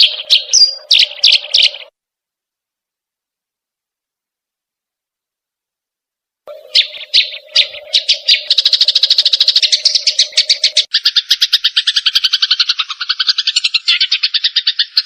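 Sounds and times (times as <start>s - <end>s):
birds chattering harshly: 0.0s - 1.9s, 6.5s - 15.0s.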